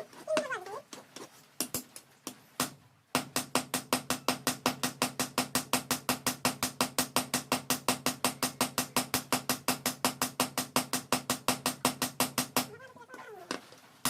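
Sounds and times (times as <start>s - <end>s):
power hammer striking steel: 3.2s - 12.7s.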